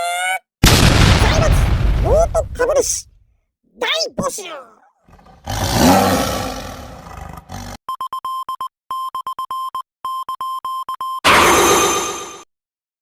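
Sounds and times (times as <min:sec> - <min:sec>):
roaring sound effect: 0:05.1 - 0:07.8.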